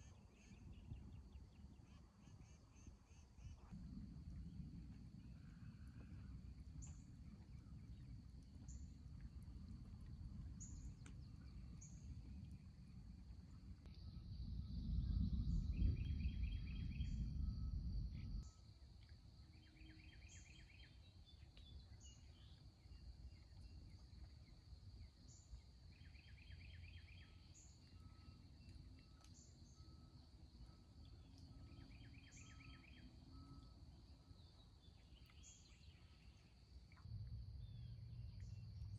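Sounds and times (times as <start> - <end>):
low rumble: 3.4 - 19.1, 36.8 - 38.9.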